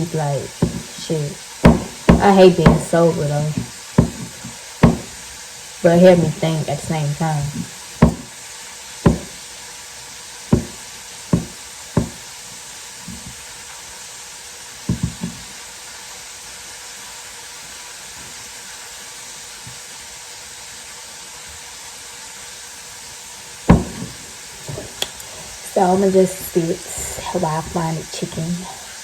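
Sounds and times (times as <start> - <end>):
chicken sizzling in hot oil: 0.0 - 26.9
sharp knocks in kitchen: 0.6 - 0.9, 1.6 - 3.0, 3.6 - 5.2, 8.0 - 8.3, 9.0 - 9.4, 10.5 - 12.2, 14.9 - 15.4, 23.7 - 24.9.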